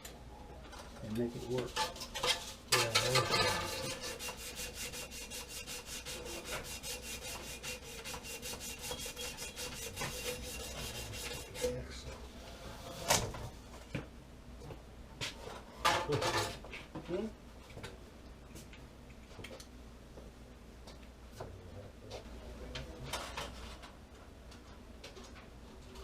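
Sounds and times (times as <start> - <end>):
hand tool rasping strokes: 1.5 - 11.8.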